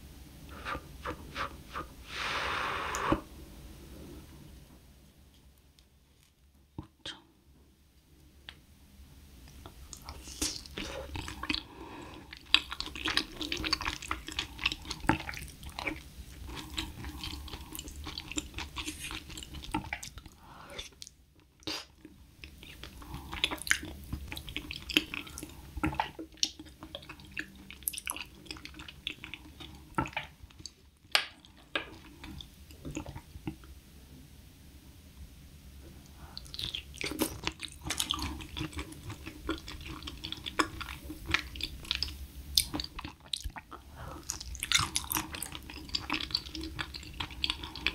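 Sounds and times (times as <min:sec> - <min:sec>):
wet sticky chewing: 0:09.9 - 0:33.6, 0:36.3 - 0:47.9
mouth clicks and smacks: 0:36.4 - 0:47.9.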